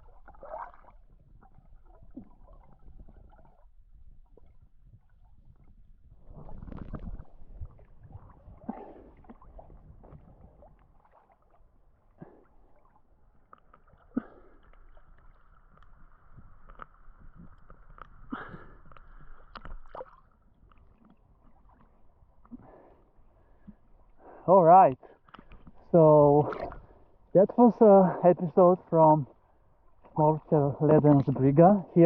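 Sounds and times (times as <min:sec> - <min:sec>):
underwater gurgling and sloshing: 0:00.0 - 0:32.0.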